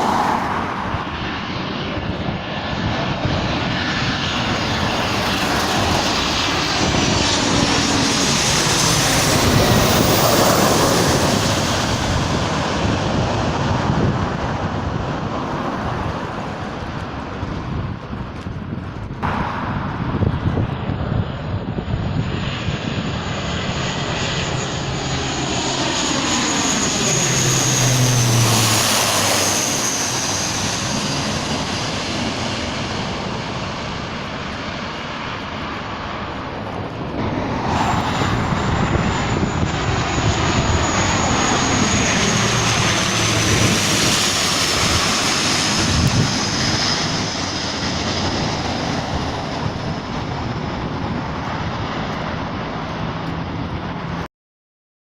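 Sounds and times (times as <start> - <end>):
turboprop airliner passing overhead: 0.0 - 54.3.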